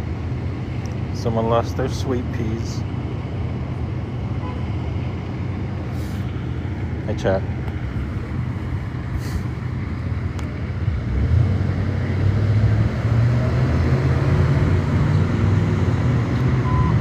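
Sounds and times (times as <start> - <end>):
street noise: 0.0 - 17.0
vehicle engine humming: 0.0 - 17.0
short electronic beep: 16.6 - 17.0.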